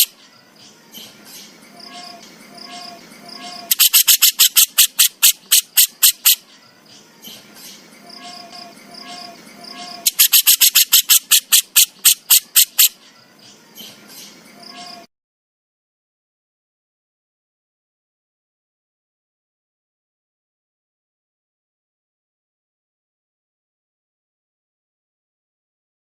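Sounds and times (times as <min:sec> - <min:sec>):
songbird rasping call: 0:00.0 - 0:15.1
three-note bird call: 0:01.7 - 0:03.8, 0:08.0 - 0:10.2, 0:14.5 - 0:15.1.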